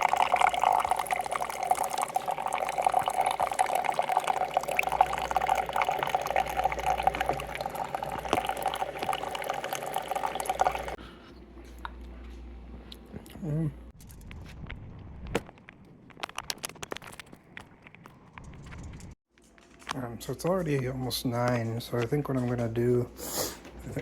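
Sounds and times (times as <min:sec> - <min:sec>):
liquid pouring into container: 0:00.0 - 0:11.0.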